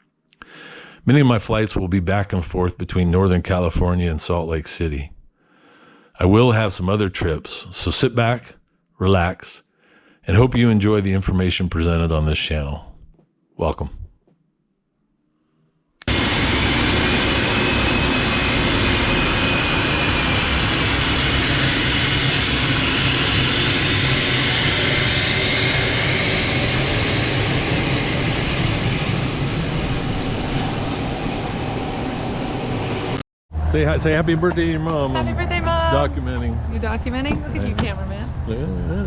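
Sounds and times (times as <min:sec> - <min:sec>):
jet engines rushing and whining: 0:16.1 - 0:39.0.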